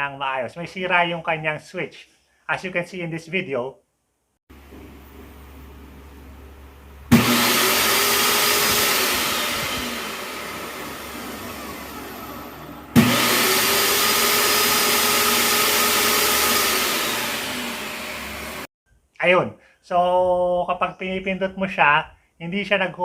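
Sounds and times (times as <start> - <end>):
falling motor whine: 4.6 - 18.7
table saw motor starting: 7.1 - 18.7.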